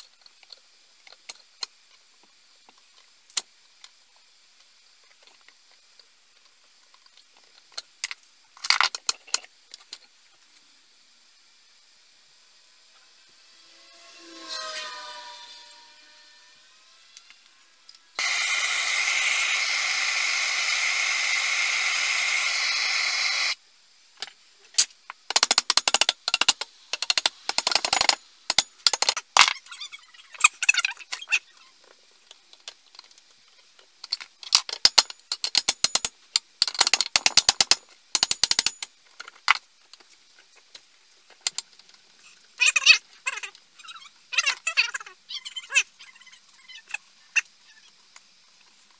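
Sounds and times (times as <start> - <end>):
steady hiss: 0.0 - 44.3
rapid rasping strokes: 13.4 - 23.6.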